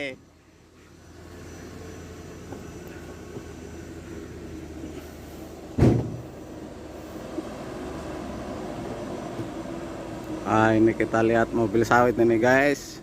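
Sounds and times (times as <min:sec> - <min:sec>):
vehicle engine rumbling: 0:00.0 - 0:13.0
loud thump: 0:05.7 - 0:06.3.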